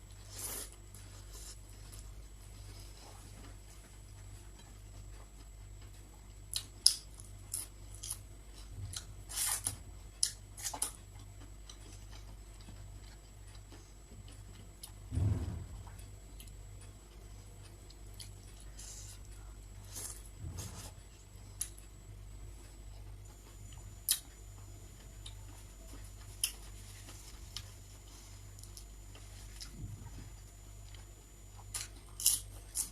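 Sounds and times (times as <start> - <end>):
low thud: 15.1 - 16.0
crisp eating crunches: 31.6 - 32.9.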